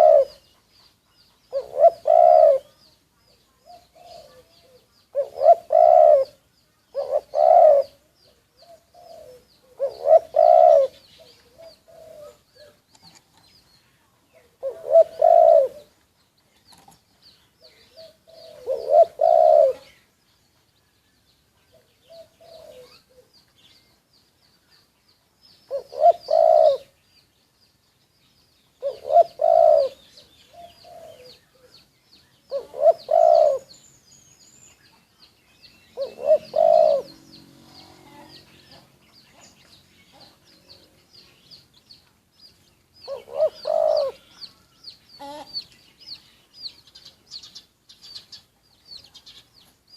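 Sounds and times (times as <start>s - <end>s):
doves cooing: 0.0s - 0.5s, 1.5s - 2.8s, 3.6s - 12.9s, 14.4s - 16.0s, 17.6s - 20.0s, 21.7s - 23.3s, 25.7s - 27.0s, 28.8s - 31.8s, 32.5s - 33.8s, 35.9s - 39.0s, 43.0s - 44.6s.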